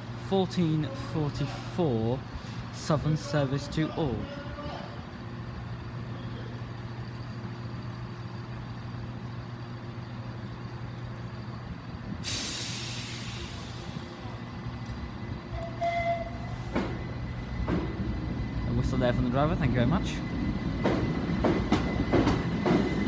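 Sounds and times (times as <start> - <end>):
train humming: 0.0 - 23.0
brake air hiss: 12.1 - 14.4
train horn whistle: 15.5 - 16.7.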